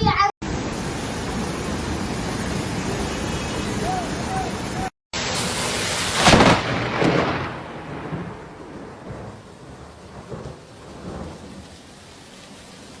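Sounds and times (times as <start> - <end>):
rain falling: 0.4 - 13.0
thunder crack and rumble: 5.2 - 11.9.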